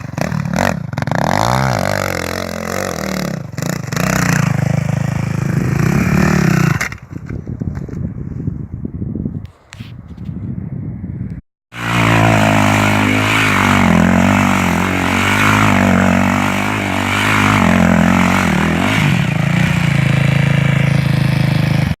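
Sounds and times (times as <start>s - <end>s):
motorcycle engine revving: 0.0s - 7.1s, 11.7s - 22.0s.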